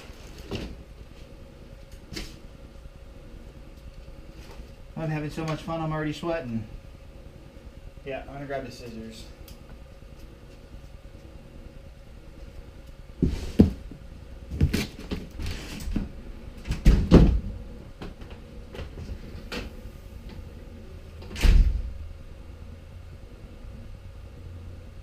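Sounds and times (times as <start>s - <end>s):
knocks and thuds: 16.7s - 18.2s.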